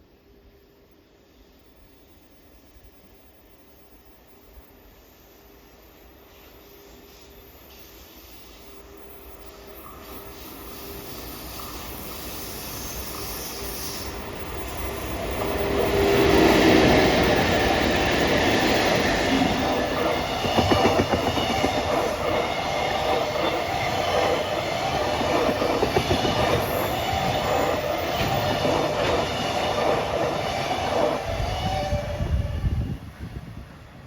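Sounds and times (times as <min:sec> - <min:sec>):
train rumbling past: 0:04.4 - 0:34.0
wheels clicking over rail joints: 0:17.7 - 0:31.2.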